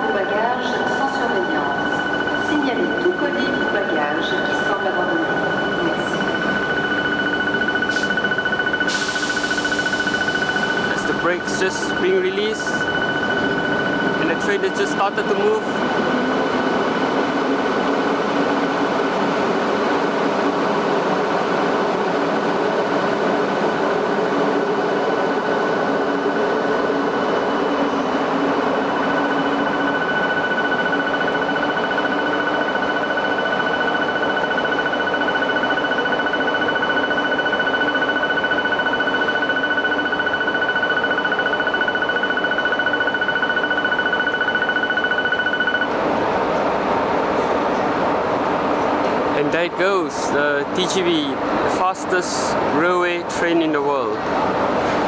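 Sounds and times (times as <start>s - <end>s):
steady high tone: 0.0s - 18.8s, 22.4s - 46.0s
high-speed train pulling away: 0.0s - 55.0s.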